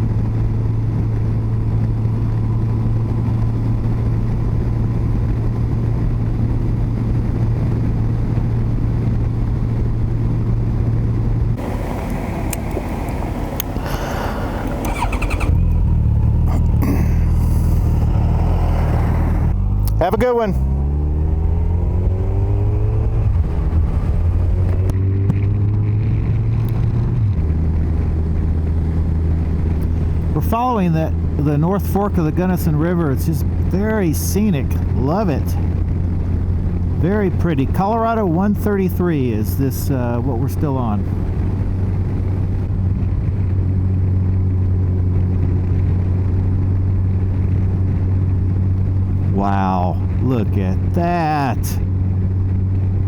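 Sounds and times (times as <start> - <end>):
motorcycle engine accelerating: 0.0 - 33.8
wind and road noise: 0.0 - 53.0.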